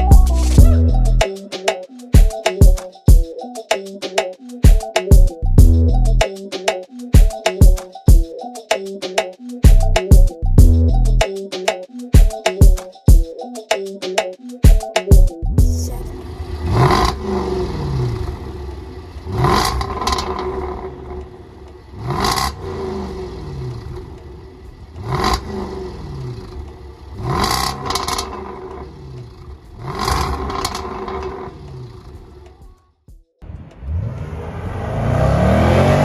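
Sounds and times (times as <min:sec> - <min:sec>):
car engine revving: 0:16.0 - 0:32.2, 0:33.4 - 0:36.0.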